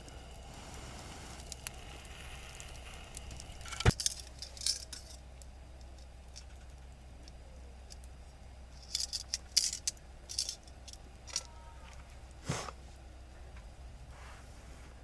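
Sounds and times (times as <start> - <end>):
light clicks and clatters: 1.4 - 12.4.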